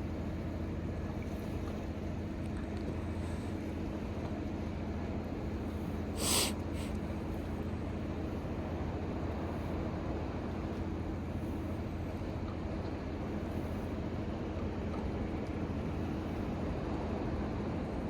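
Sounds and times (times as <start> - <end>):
short hiss: 6.2 - 6.9.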